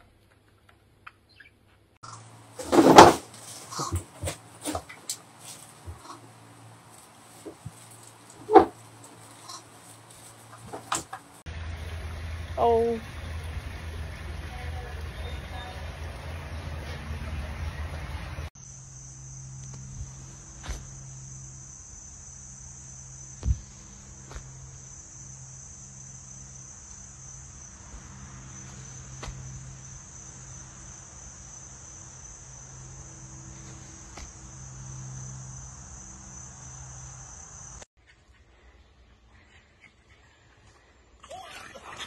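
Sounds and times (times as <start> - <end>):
crickets trilling: 2.0 - 11.4, 18.6 - 37.9
low hum: 3.2 - 37.8.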